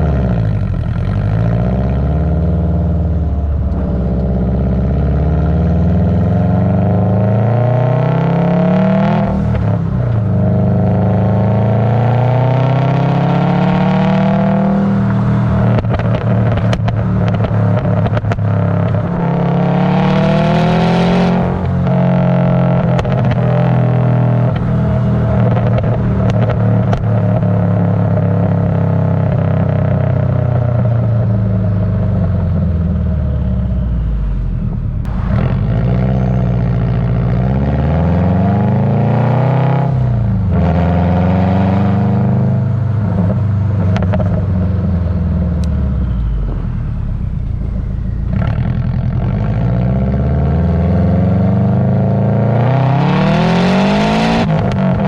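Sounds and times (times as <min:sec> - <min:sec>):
car exhaust revving: 0:00.0 - 0:55.0
exhaust pops: 0:15.5 - 0:19.2, 0:22.8 - 0:28.3, 0:43.2 - 0:44.6.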